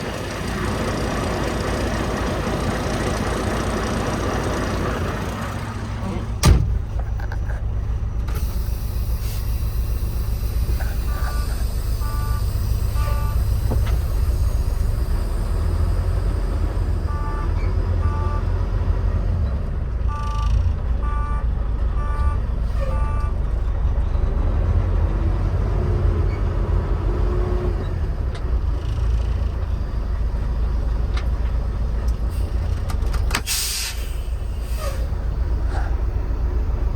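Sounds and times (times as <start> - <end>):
truck diesel engine idling: 0.0 - 24.4, 28.0 - 36.9
air brakes hissing: 8.3 - 16.1, 32.2 - 36.1.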